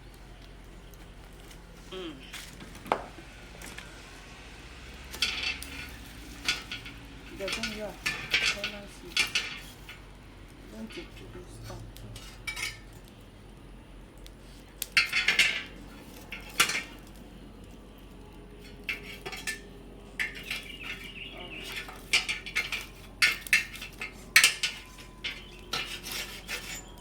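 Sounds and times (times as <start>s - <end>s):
metal cookware clattering: 5.1s - 10.1s, 10.7s - 13.0s, 14.8s - 17.2s, 18.6s - 27.0s.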